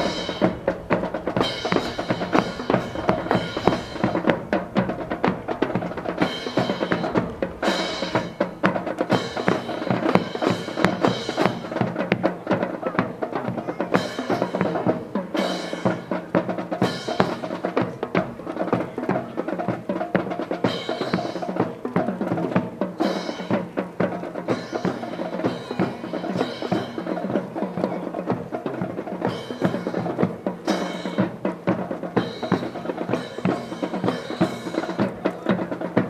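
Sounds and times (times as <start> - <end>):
bass drum beat: 0.0 - 11.1
cymbal crashes: 0.0 - 11.7.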